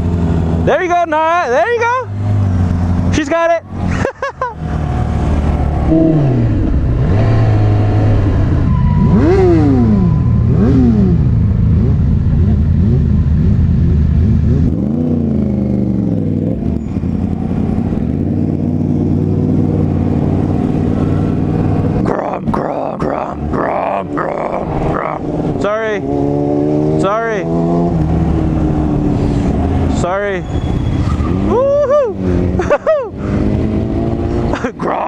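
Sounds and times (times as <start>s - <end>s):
motorcycle engine revving: 2.1s - 34.7s.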